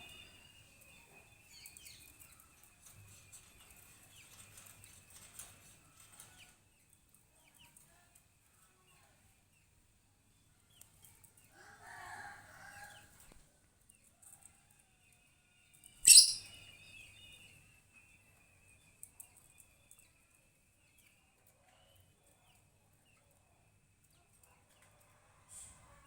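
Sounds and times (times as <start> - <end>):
lower bird call: 16.1 - 16.5
faint high falling bird chirps: 16.1 - 16.6.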